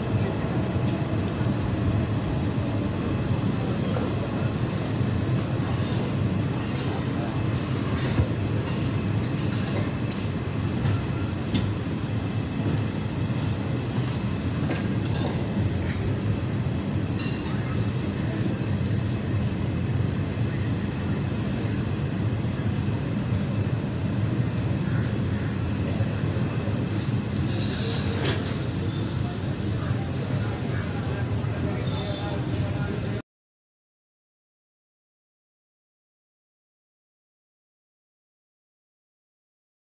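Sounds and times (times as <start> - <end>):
wheels rumbling on rail: 0.0 - 33.2
short hiss: 26.9 - 28.9.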